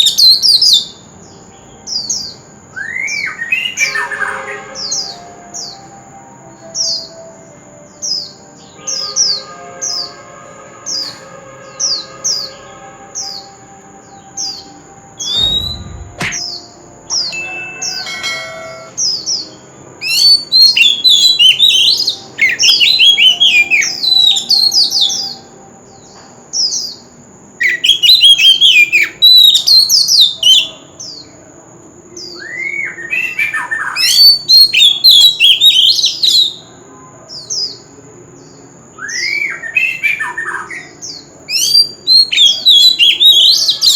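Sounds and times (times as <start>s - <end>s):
bird singing: 0.0s - 43.9s
steady high-pitched tone: 9.6s - 20.0s
low thump: 15.3s - 16.5s.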